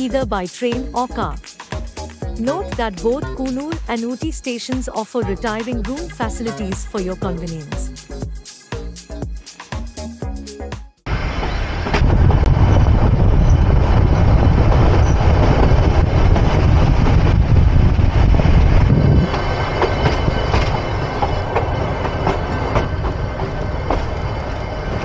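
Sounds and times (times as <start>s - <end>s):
train wheels rumbling on rails: 11.1s - 25.0s.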